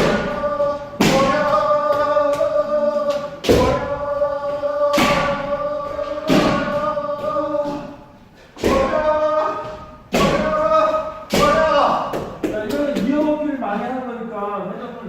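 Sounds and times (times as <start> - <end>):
people shouting kiai together: 0.0 - 12.1
stamping footwork thuds: 0.0 - 13.2
strikes landing: 3.1 - 8.0.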